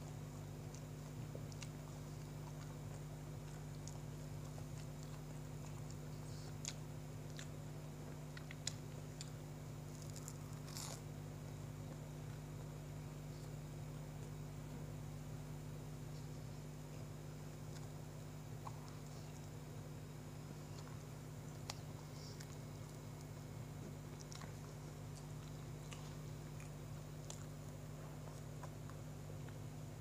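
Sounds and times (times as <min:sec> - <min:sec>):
chewing with wet clicks and smacks: 0:00.0 - 0:11.0, 0:16.9 - 0:19.7, 0:20.6 - 0:29.7
steady low hum: 0:00.0 - 0:30.0.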